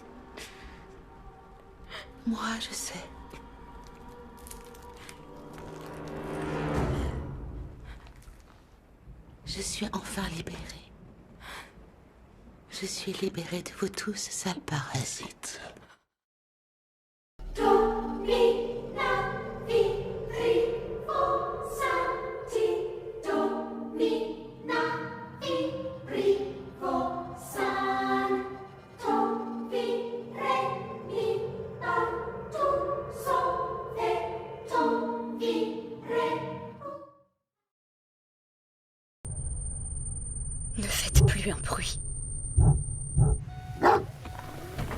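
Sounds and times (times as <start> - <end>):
choir singing: 17.5 - 37.2.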